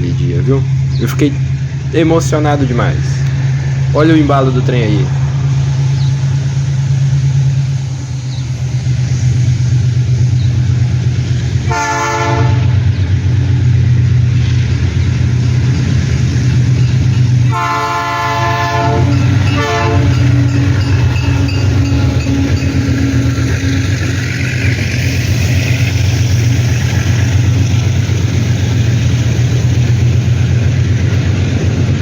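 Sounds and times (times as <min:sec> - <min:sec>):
diesel locomotive running: 0:00.0 - 0:32.0
freight train rolling by: 0:00.0 - 0:32.0
locomotive horn: 0:11.6 - 0:12.9, 0:17.4 - 0:23.2.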